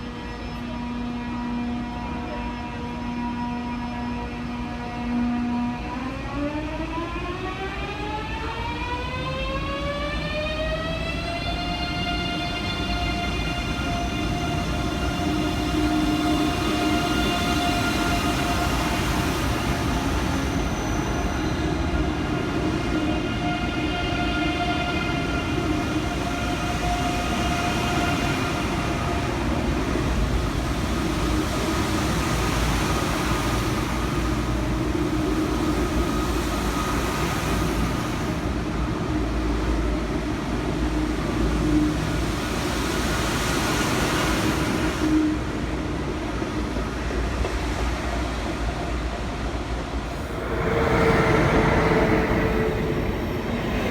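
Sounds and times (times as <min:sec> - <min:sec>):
train rumbling on rails: 0:00.0 - 0:53.9
high whining tone: 0:50.1 - 0:53.9.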